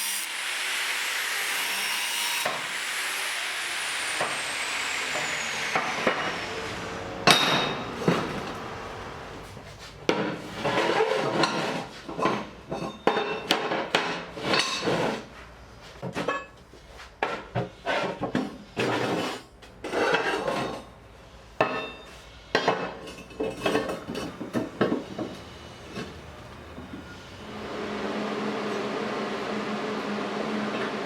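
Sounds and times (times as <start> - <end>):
clanking of metal and wood: 21.6 - 27.2.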